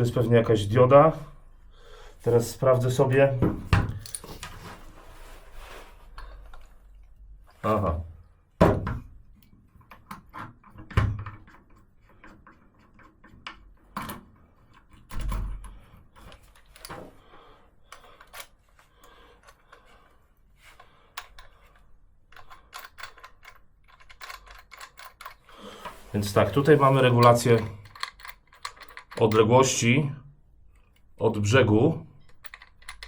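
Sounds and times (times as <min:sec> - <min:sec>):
clicks and knocks of tool handling: 0:03.4 - 0:04.8, 0:08.8 - 0:17.2, 0:17.9 - 0:20.0, 0:20.6 - 0:29.5, 0:32.2 - 0:33.0.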